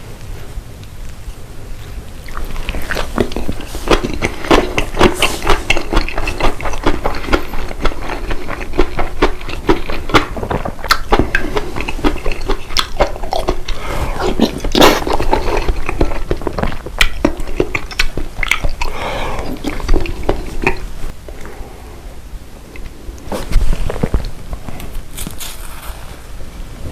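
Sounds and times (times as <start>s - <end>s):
chewing: 2.2s - 21.5s.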